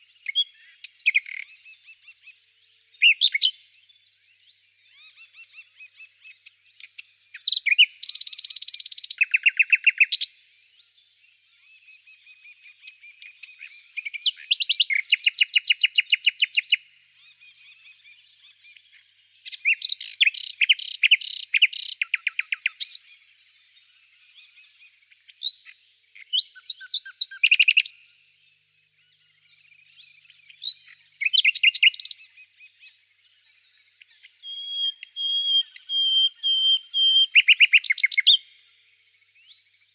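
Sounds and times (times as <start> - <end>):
songbird trilling: 0.0 - 3.6, 6.7 - 10.3, 19.3 - 23.2, 25.4 - 28.1, 29.0 - 33.0, 34.0 - 38.6
birds chirping: 0.0 - 39.9.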